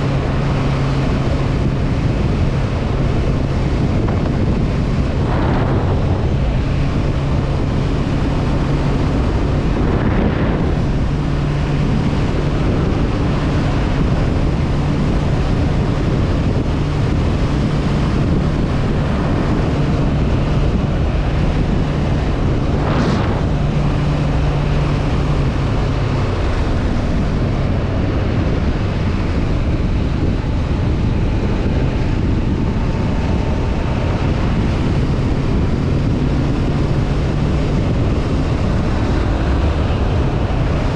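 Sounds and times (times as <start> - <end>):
motorcycle engine cruising: 0.0 - 40.9
wind noise on microphone: 0.0 - 40.9
short whoosh: 3.9 - 13.0, 20.7 - 26.4.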